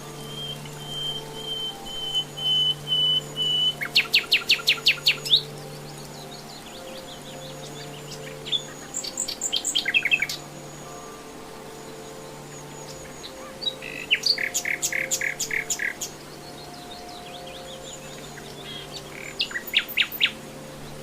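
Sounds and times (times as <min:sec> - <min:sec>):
nightingale singing: 0:00.0 - 0:21.0.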